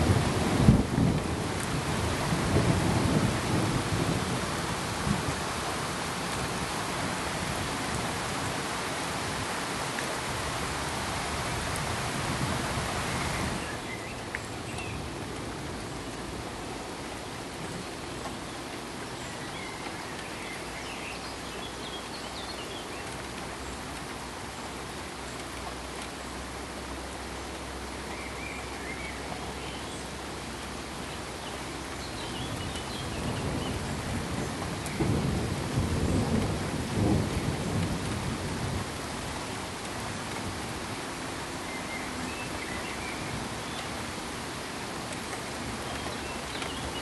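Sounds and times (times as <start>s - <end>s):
rumble of thunder: 0.0s - 8.6s, 32.4s - 41.0s
steady hiss like rain: 0.0s - 47.0s.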